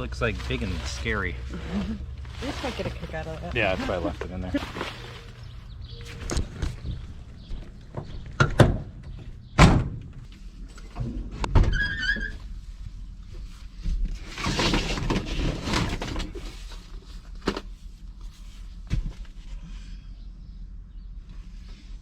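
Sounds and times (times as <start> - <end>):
rustling and scraping: 0.0 - 9.4, 10.0 - 20.0
knocks and thuds inside a car: 6.4 - 10.2.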